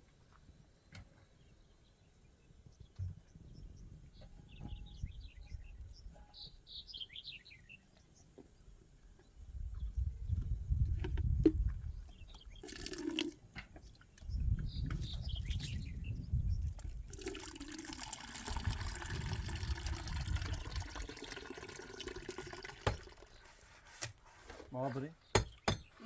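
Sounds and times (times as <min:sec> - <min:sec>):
water pouring: 0:12.6 - 0:13.4, 0:17.0 - 0:23.5.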